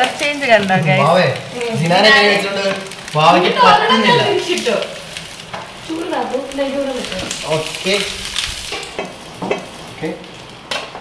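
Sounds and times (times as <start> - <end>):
fish parcels sizzling in pan: 0.0 - 11.0.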